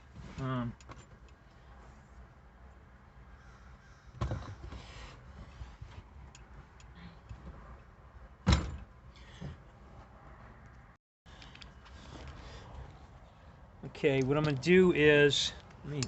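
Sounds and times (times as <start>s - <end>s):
crow cawing: 3.3s - 4.2s.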